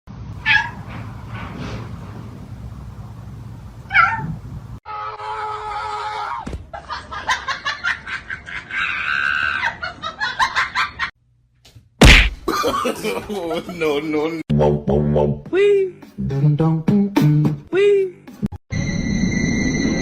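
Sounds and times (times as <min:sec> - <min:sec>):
cat meowing: 0:00.4 - 0:00.8, 0:03.9 - 0:04.4.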